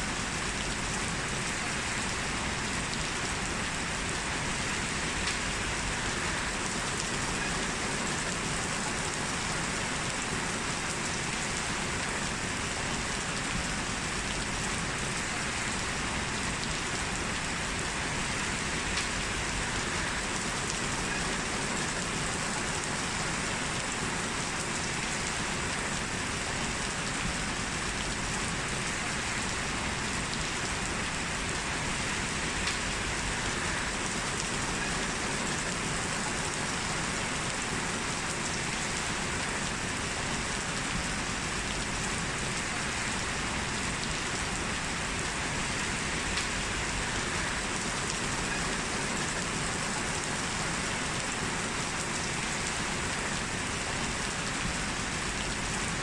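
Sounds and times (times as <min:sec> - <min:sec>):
heavy rain falling: 0:00.0 - 0:56.0
raindrop ticks: 0:18.9 - 0:19.2, 0:32.6 - 0:32.9, 0:46.3 - 0:46.6.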